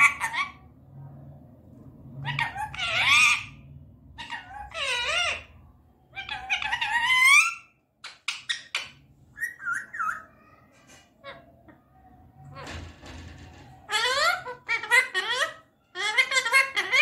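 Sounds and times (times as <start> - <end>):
parakeet high wavering calls: 0.0 - 0.6, 2.2 - 10.6, 13.8 - 17.0.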